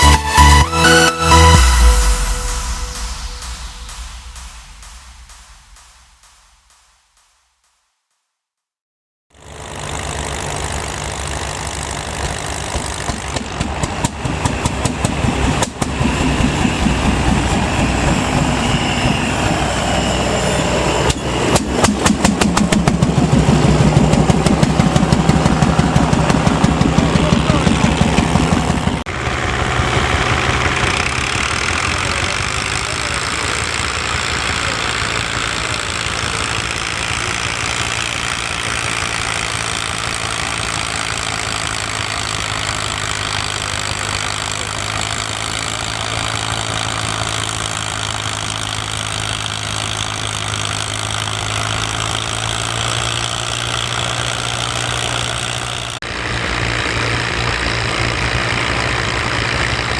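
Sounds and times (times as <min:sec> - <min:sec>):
tractor engine running: 0:00.0 - 0:06.8, 0:09.3 - 0:59.9.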